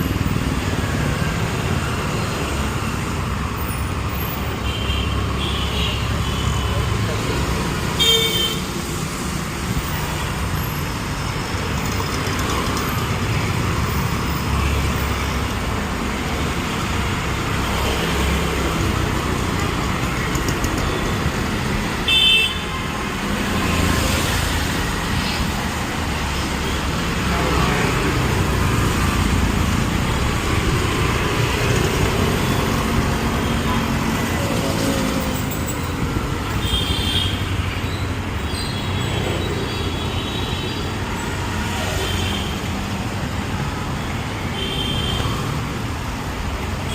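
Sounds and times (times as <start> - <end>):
traffic rumble: 0.0 - 46.9.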